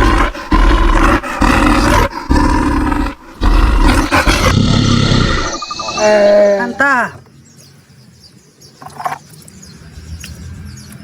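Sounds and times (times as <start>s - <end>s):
bear roaring: 0.0s - 6.8s.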